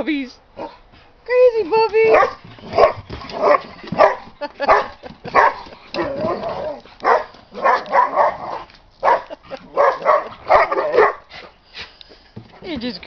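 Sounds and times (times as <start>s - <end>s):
puppies barking: 2.1s - 11.3s.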